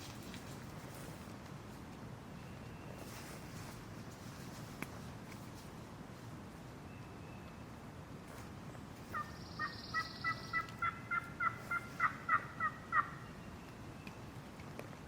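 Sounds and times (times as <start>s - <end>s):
turkey yelps: 9.1s - 13.2s.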